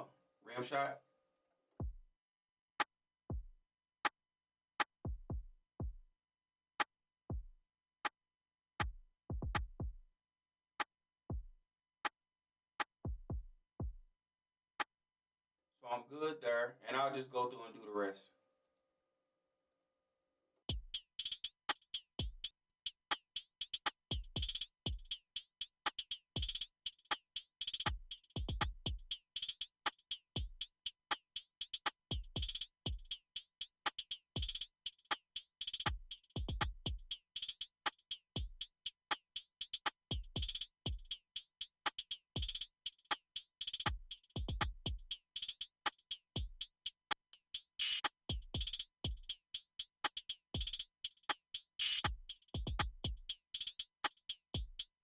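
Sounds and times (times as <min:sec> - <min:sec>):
drum machine beat: 0:08.8 - 0:10.0, 0:13.1 - 0:14.0, 0:20.7 - 0:55.0.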